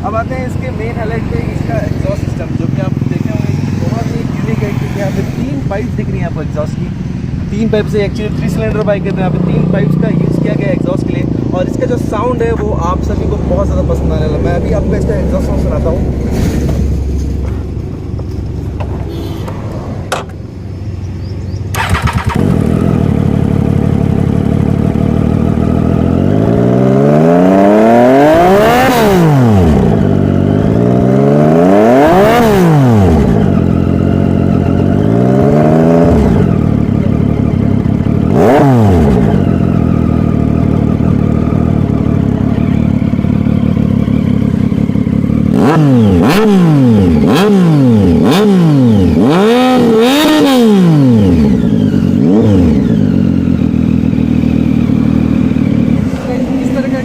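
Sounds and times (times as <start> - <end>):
motorcycle engine revving: 0.0 - 57.0
sharp throttle blips: 21.6 - 23.0.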